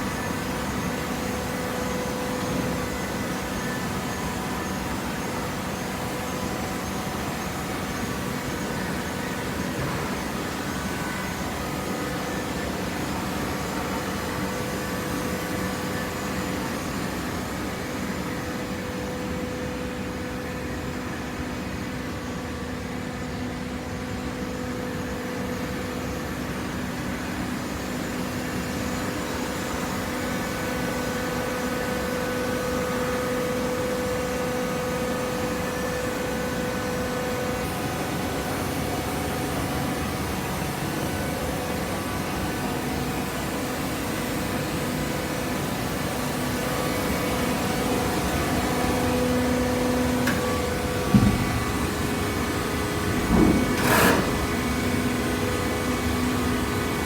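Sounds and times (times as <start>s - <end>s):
hydraulic press machine hum: 0.0s - 57.0s
steady machine tone: 46.3s - 55.6s.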